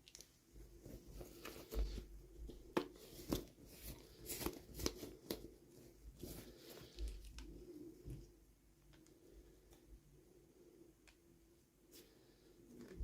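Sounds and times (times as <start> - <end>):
packaging rustling and crinkling: 0.0 - 7.5.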